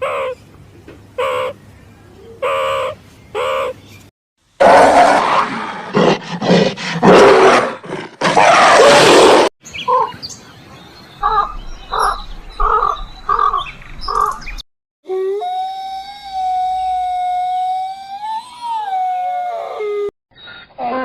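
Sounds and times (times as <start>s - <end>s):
big cat roaring: 4.6s - 9.5s.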